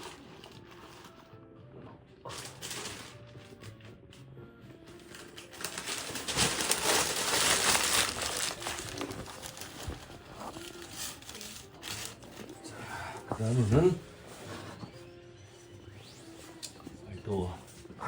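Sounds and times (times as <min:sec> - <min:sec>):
paper crumpling: 0:02.3 - 0:03.8, 0:04.9 - 0:12.7.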